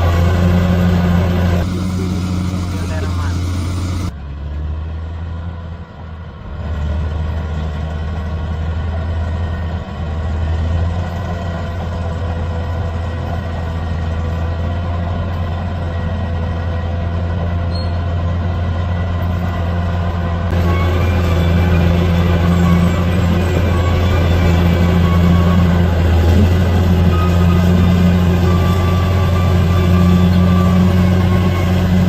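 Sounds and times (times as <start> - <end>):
bulldozer diesel engine running: 0.0 - 32.0.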